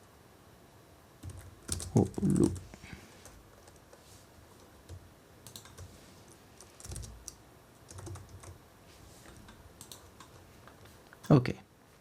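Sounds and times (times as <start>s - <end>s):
computer keyboard typing: 1.2s - 4.0s, 4.6s - 8.6s, 9.2s - 10.9s.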